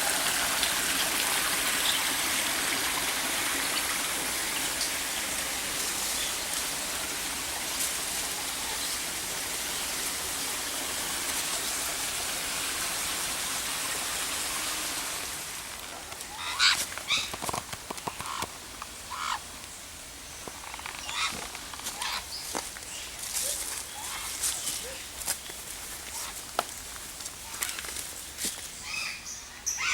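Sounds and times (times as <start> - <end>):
running water rushing: 0.0 - 28.0
bird calling: 16.3 - 17.4, 19.1 - 19.4, 20.7 - 22.6.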